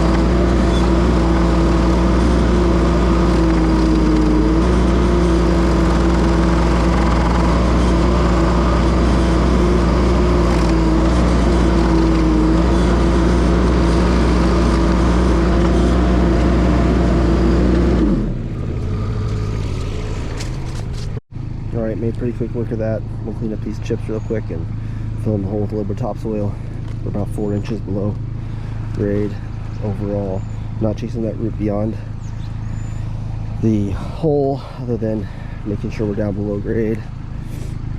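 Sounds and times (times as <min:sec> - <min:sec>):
stump grinder grinding: 0:00.0 - 0:21.2
skid steer engine running: 0:00.0 - 0:37.9.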